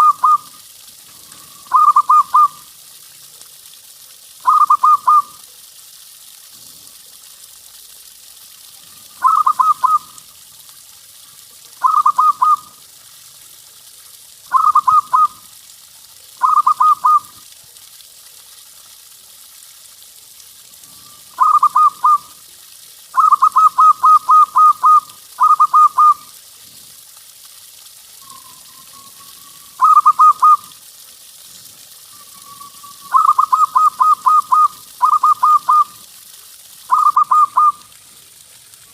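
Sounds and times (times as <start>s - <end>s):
dove cooing: 0.0s - 0.5s, 1.3s - 2.6s, 4.4s - 5.3s, 9.2s - 10.1s, 11.8s - 12.7s, 14.5s - 15.4s, 16.4s - 17.3s, 21.4s - 22.3s, 23.2s - 26.2s, 29.7s - 30.7s, 33.0s - 36.0s, 36.9s - 37.8s.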